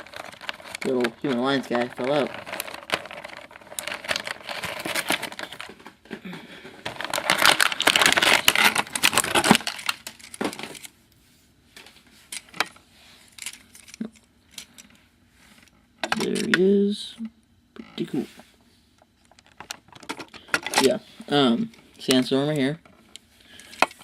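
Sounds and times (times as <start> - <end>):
plastic packaging rustling: 0.0 - 10.9.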